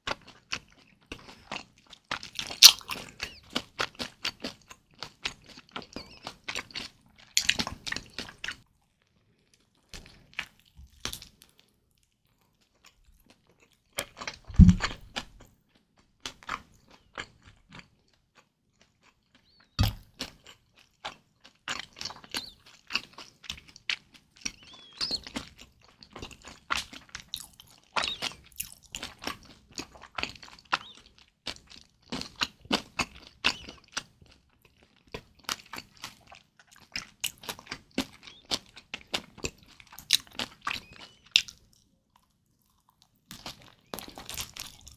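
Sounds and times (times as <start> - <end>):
chewing and biting food: 0.1 - 44.9
low thump: 14.5 - 15.0.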